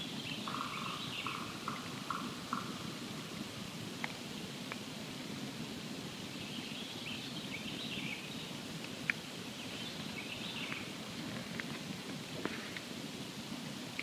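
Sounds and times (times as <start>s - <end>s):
fire crackles and pops: 1.7s - 6.2s, 8.6s - 10.2s, 10.8s - 14.0s
campfire burning: 1.8s - 14.0s.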